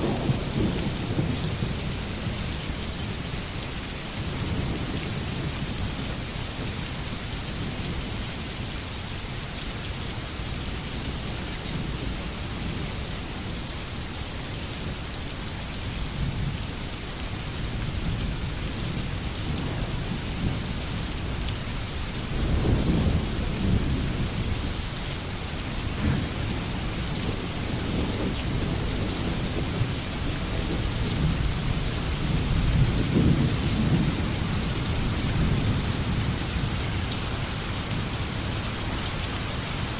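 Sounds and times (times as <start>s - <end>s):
low thunder rumbling: 0.0s - 3.4s, 22.2s - 24.9s, 25.7s - 38.5s
steady rain falling: 0.0s - 39.9s.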